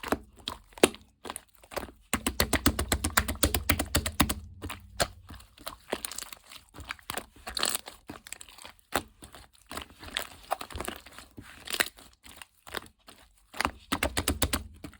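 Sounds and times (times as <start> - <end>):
crinkling and rustling: 0.0 - 14.9
small taps and clicks: 2.2 - 5.2.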